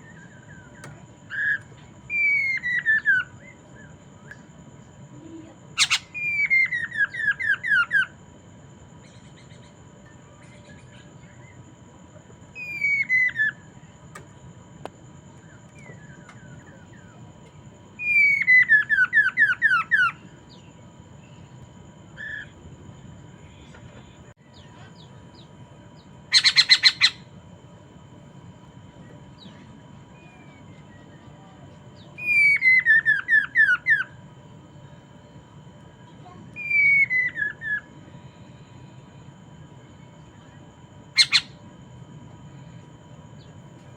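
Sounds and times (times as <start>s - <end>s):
songbird whistling: 0.0s - 4.4s, 5.8s - 8.2s, 12.6s - 13.8s, 18.0s - 21.6s, 22.2s - 22.6s, 24.5s - 27.3s, 29.1s - 34.2s, 36.6s - 38.0s, 41.1s - 41.6s
faint steady tones: 0.0s - 43.9s
harsh bird squawk: 5.8s - 8.2s, 22.2s - 22.6s, 26.3s - 27.3s, 32.2s - 34.2s, 36.6s - 37.9s, 41.2s - 41.6s.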